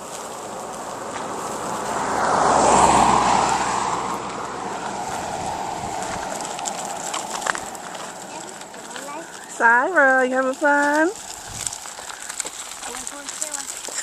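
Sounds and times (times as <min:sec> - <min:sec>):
vehicle driving past: 0:00.0 - 0:09.7.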